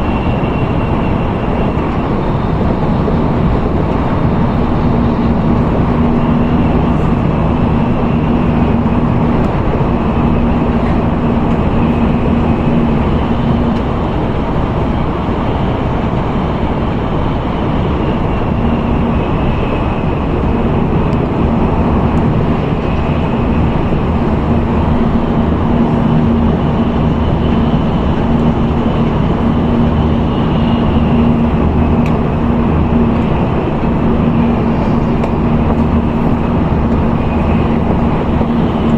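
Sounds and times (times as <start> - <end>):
steady low hum: 0.0 - 38.9
train interior rumble and rush: 0.0 - 38.9.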